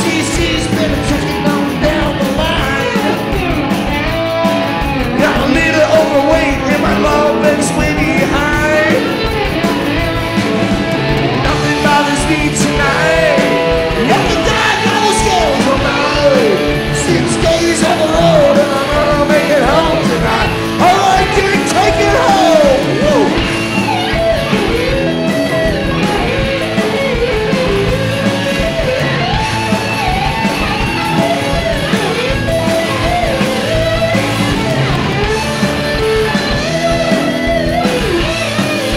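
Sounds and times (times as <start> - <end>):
person singing: 0.0 - 3.6, 5.0 - 9.5, 11.4 - 23.6
rock band playing: 0.0 - 38.9.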